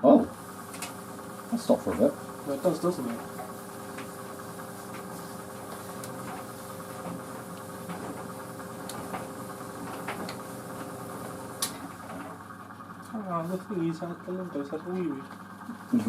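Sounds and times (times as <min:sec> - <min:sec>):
tumble dryer motor hum: 0:00.0 - 0:16.0
clicks and knocks of tumbling load: 0:00.7 - 0:12.5.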